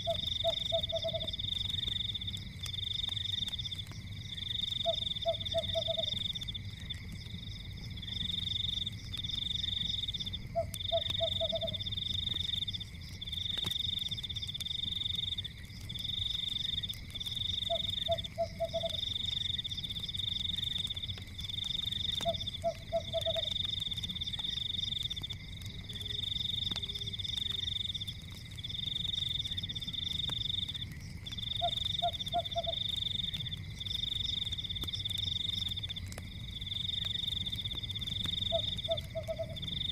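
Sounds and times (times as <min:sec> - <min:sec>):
frog croaking: 0:00.0 - 0:01.4, 0:04.8 - 0:06.4, 0:10.5 - 0:12.0, 0:17.6 - 0:19.2, 0:22.1 - 0:23.6, 0:31.5 - 0:33.0, 0:38.3 - 0:39.9
frogs trilling: 0:00.0 - 0:39.9.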